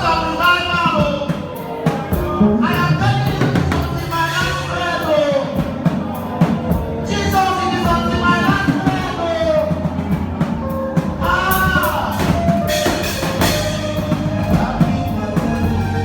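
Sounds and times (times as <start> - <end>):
band playing gospel music: 0.0 - 16.0
drum kit beat: 0.0 - 16.0
person singing: 0.0 - 16.0.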